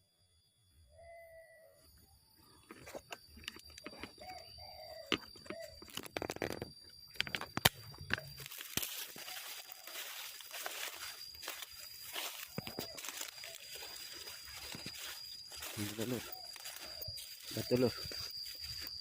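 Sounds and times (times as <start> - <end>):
vegetation rustling and crunching: 7.2 - 19.0.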